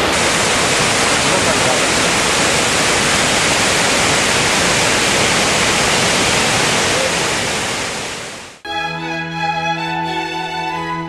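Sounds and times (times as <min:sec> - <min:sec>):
waterfall roaring: 0:00.0 - 0:08.6
bowed string music: 0:08.7 - 0:11.0.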